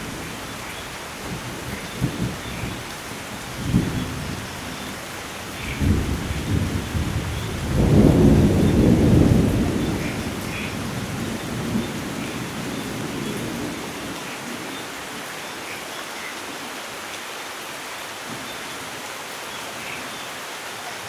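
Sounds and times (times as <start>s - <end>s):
steady rain: 0.0s - 21.0s
rolling thunder: 1.2s - 14.0s.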